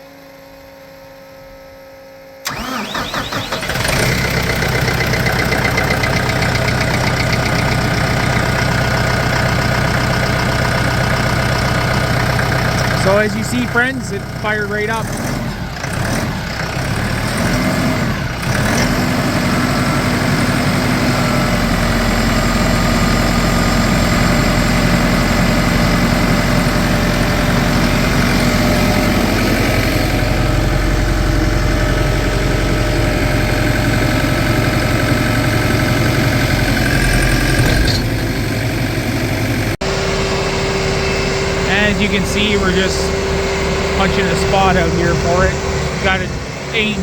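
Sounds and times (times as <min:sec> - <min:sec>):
tractor diesel engine running: 0:02.4 - 0:47.0.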